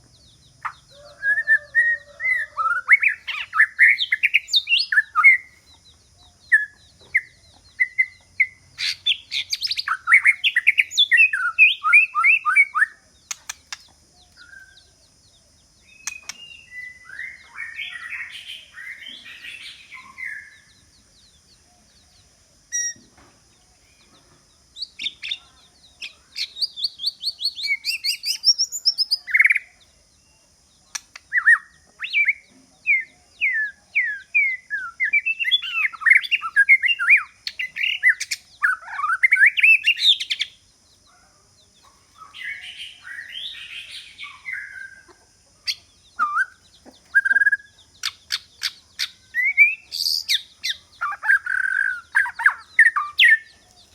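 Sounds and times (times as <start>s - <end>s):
bird singing whistled notes: 0.0s - 21.4s, 22.7s - 23.1s, 24.8s - 29.8s, 30.9s - 40.6s, 42.1s - 45.1s, 45.7s - 53.9s
bird chattering: 0.6s - 14.9s, 15.9s - 20.6s, 41.9s - 53.9s.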